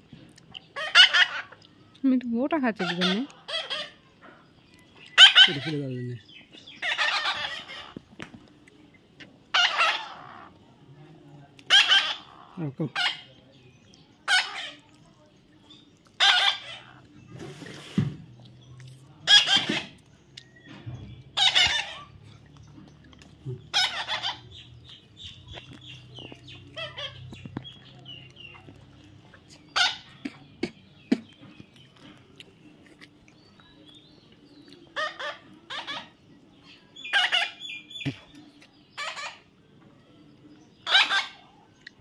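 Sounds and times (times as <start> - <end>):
parrot screeching: 0.8 - 1.6, 2.8 - 4.0, 5.2 - 5.7, 6.8 - 8.0, 9.5 - 10.5, 11.7 - 13.3, 14.3 - 14.8, 16.2 - 17.0, 19.3 - 19.9, 21.4 - 22.1, 23.7 - 24.4, 29.8 - 30.1, 37.1 - 37.6, 39.0 - 39.4, 40.8 - 41.4.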